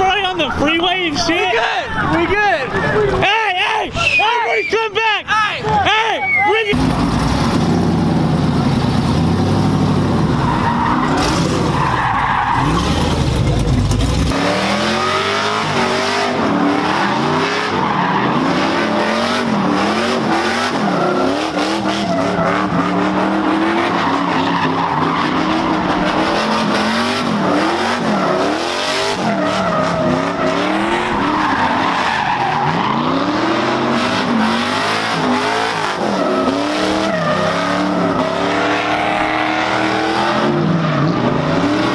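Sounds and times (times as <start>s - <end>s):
tyres squealing: 0.0s - 6.8s
car engine revving: 6.7s - 41.9s.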